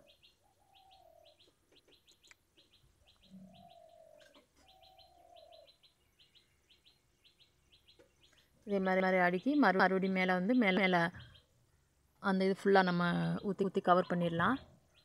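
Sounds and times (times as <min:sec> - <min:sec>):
low cooing bird notes: 0:00.0 - 0:05.9
small high bird chirps: 0:00.0 - 0:08.8.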